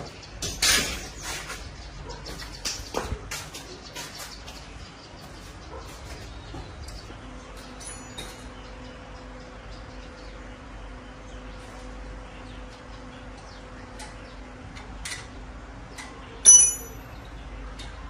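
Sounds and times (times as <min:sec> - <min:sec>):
sharp metallic clink: 0:07.8 - 0:08.5, 0:16.4 - 0:17.3
metal parts clicking: 0:16.4 - 0:17.1.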